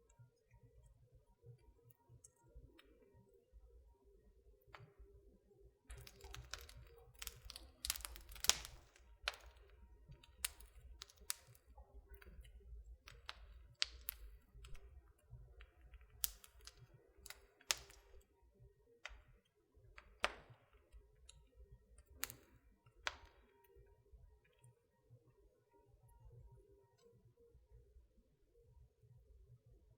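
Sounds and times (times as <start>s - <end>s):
low rumble of burning logs: 5.8s - 24.5s
wood fire crackling: 5.9s - 18.4s, 19.0s - 23.9s.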